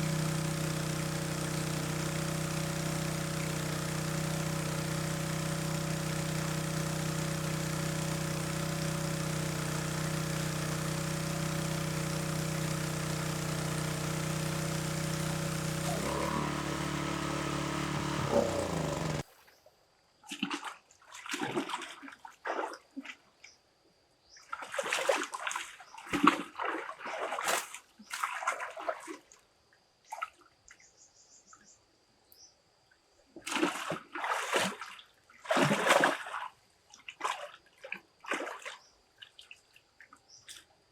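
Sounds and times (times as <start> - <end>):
small engine running: 0.0 - 19.3
water splashing and sloshing: 20.3 - 23.3, 24.5 - 29.4, 33.4 - 40.7.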